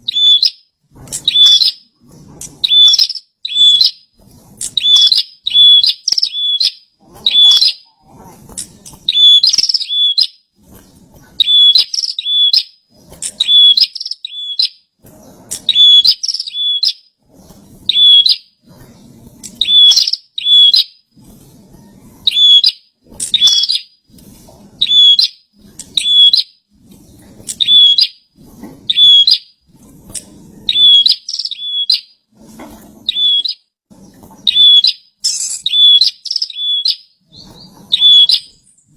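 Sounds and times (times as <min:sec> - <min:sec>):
bird chirping: 0:00.0 - 0:01.8, 0:02.6 - 0:04.0, 0:04.6 - 0:07.9, 0:08.5 - 0:10.4, 0:11.4 - 0:14.8, 0:15.5 - 0:17.1, 0:17.9 - 0:18.5, 0:19.4 - 0:21.0, 0:22.3 - 0:24.0, 0:24.8 - 0:26.5, 0:27.4 - 0:28.2, 0:28.9 - 0:29.5, 0:30.1 - 0:32.2, 0:33.1 - 0:33.6, 0:34.4 - 0:38.9.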